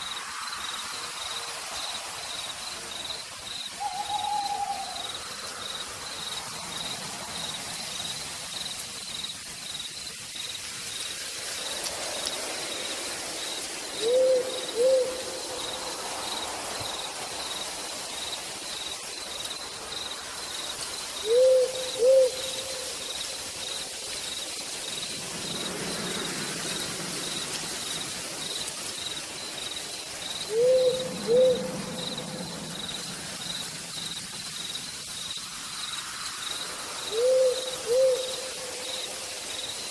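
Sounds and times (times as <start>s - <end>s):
insect chirping: 0.0s - 39.9s
steady rain hiss: 0.0s - 39.9s
owl hooting: 3.8s - 5.0s, 14.0s - 15.4s, 21.2s - 22.8s, 30.5s - 32.4s, 37.1s - 38.8s.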